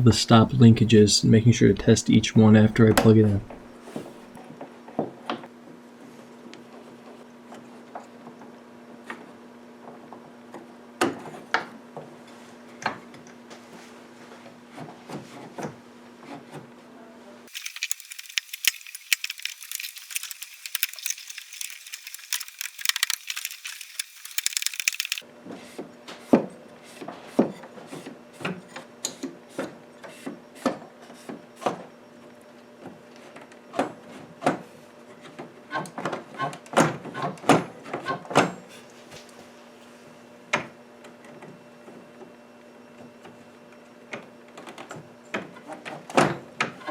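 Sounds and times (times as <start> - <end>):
high-pitched ticking and crackle: 17.5 - 25.2.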